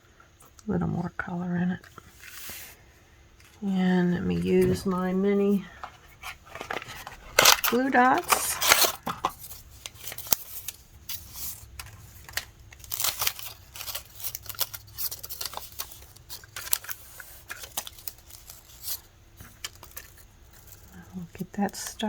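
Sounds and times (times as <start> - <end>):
paper crinkling and clicking: 5.7 - 22.0.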